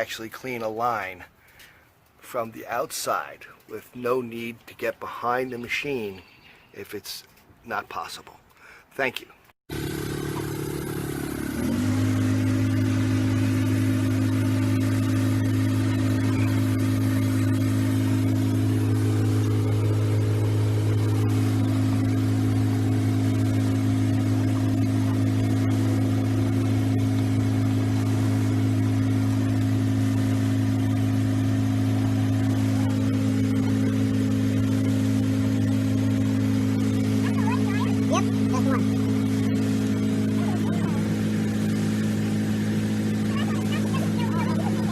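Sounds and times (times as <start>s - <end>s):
engine running steadily: 9.7s - 44.9s.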